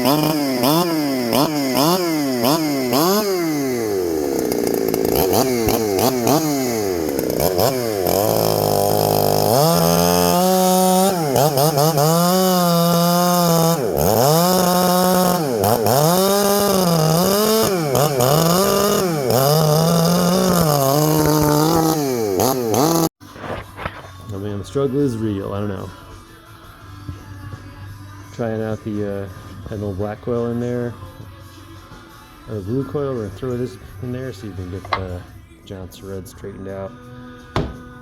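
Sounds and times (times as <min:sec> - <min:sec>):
chainsaw engine surging: 0:00.0 - 0:23.1, 0:34.4 - 0:35.3.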